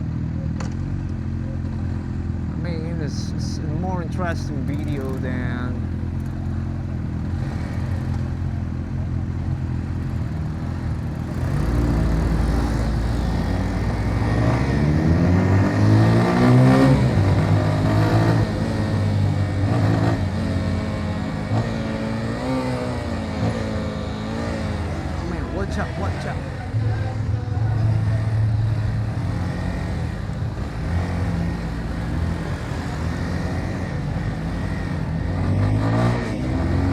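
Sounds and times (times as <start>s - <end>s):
motorcycle engine accelerating: 0.0s - 36.9s.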